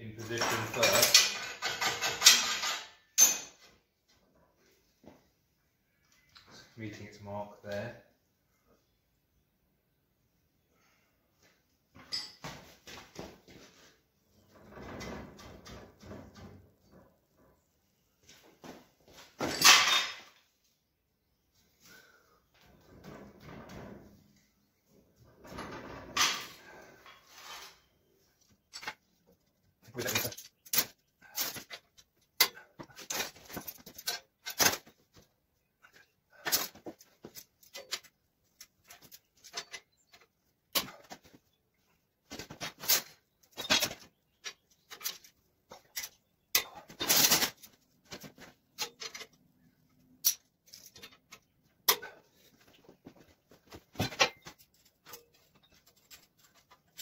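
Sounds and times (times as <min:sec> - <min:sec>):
metal hoops clinking and knocking: 0:00.1 - 0:03.7, 0:12.0 - 0:13.0, 0:19.1 - 0:20.5, 0:25.4 - 0:27.9, 0:28.5 - 0:41.4, 0:42.3 - 0:57.0.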